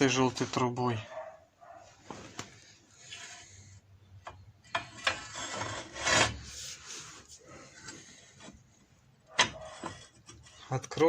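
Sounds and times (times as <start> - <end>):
metal tools scraping: 9.3 - 11.0.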